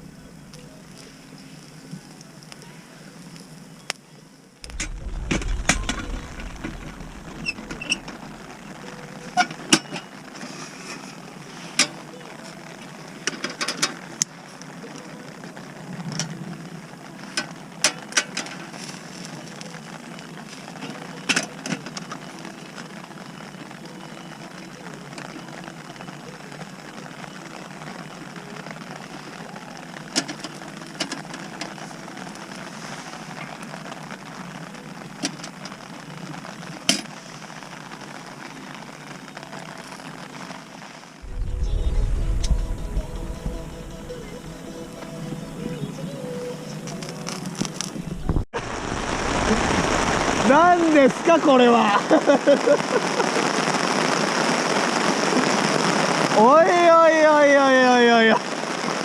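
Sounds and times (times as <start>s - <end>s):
fire hissing: 0.0s - 59.0s
wood fire crackling: 0.0s - 59.0s.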